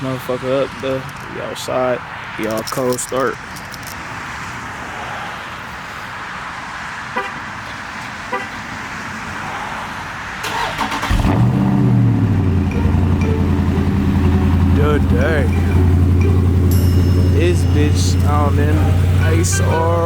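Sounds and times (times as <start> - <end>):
car engine starting and idling: 10.4 - 20.0.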